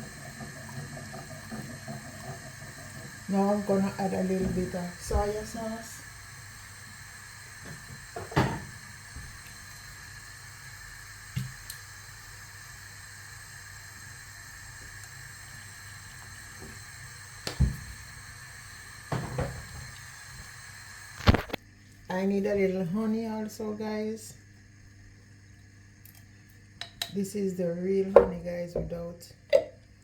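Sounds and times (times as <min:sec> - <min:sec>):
kitchen knocks and clunks: 0:08.2 - 0:08.8, 0:17.5 - 0:17.9, 0:19.1 - 0:19.8, 0:28.2 - 0:29.0.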